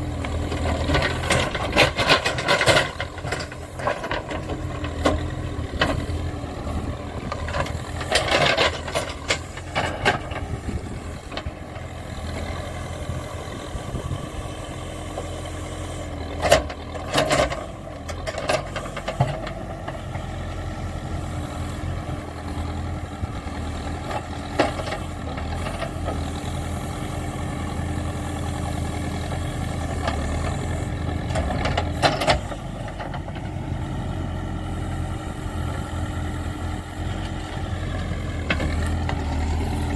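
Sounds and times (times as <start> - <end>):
diesel engine running: 0.0 - 39.9
metal clanks and rattles: 0.6 - 6.1, 7.2 - 11.5.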